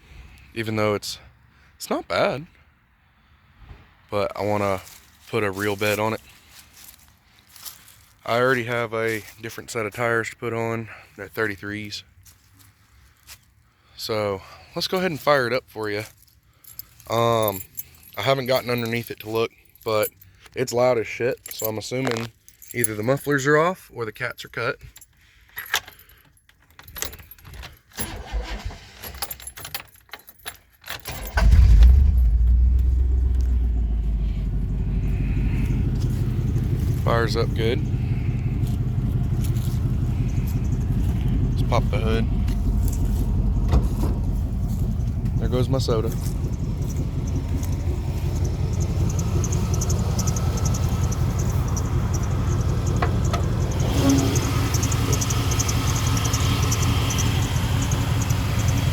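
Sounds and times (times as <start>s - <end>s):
keys jangling in ignition: 15.6s - 20.7s, 21.3s - 23.6s, 24.4s - 58.9s
loud truck engine idling: 31.4s - 58.9s
sharp clicks: 45.0s - 58.9s.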